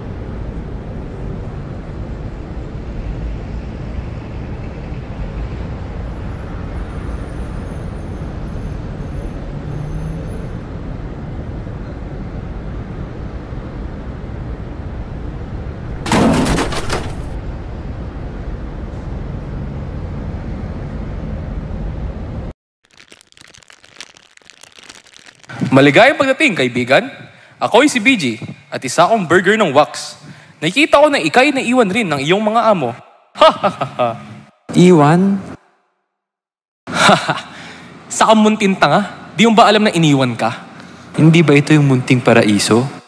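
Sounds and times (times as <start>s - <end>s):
low rumble of background ambience: 10.9s - 22.5s
loud rough crash: 15.9s - 17.4s.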